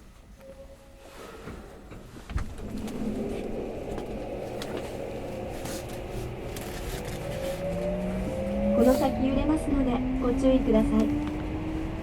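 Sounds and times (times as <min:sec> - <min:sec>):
train running rumble: 0:01.4 - 0:12.0
traction motor whine: 0:02.5 - 0:12.0.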